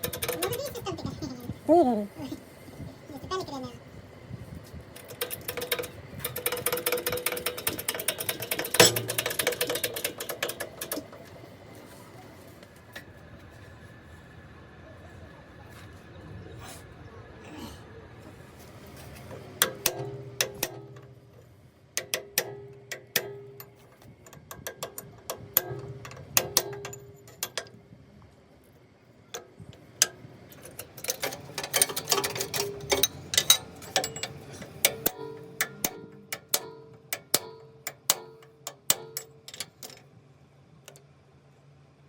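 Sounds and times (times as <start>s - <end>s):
hammer striking metal: 8.8s - 9.5s, 32.6s - 39.3s.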